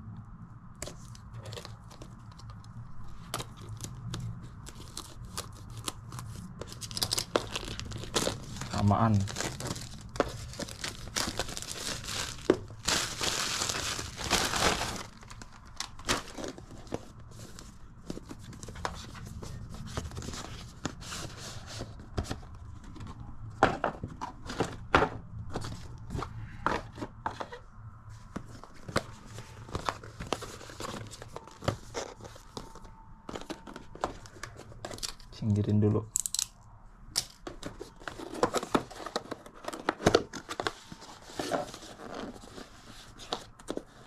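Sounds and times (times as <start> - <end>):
packaging tearing and crinkling: 1.0 - 17.0.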